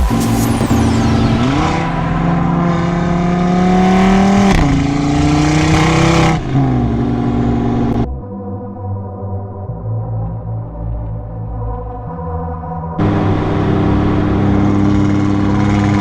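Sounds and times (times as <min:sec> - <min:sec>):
car engine accelerating hard: 0:00.0 - 0:08.1, 0:13.0 - 0:16.0.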